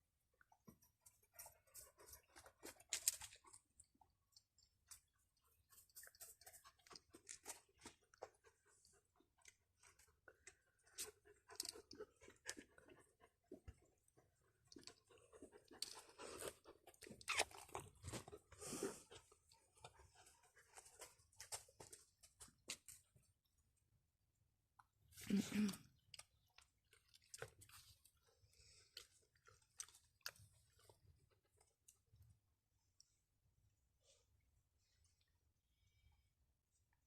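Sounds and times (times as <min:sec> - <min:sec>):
puppies feeding wet smacks: 0:00.4 - 0:23.0.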